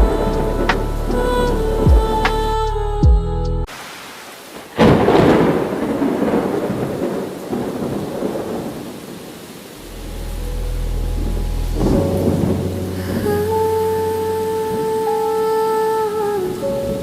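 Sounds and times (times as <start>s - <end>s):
steady rainfall: 0.0s - 2.7s, 3.6s - 17.0s
thunderclap rumbling: 0.0s - 3.1s, 4.5s - 14.1s
low steady drone: 0.0s - 3.6s.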